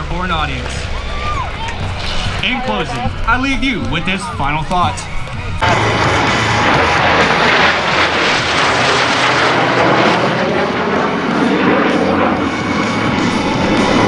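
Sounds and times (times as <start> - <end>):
airplane flying past: 0.0 - 14.0.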